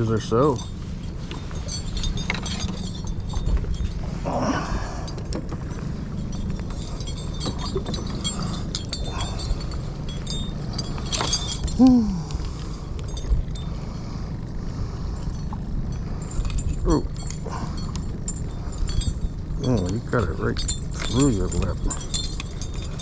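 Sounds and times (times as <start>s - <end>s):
steady low hum: 0.0s - 23.0s
clicks and knocks handling fish: 5.0s - 13.6s.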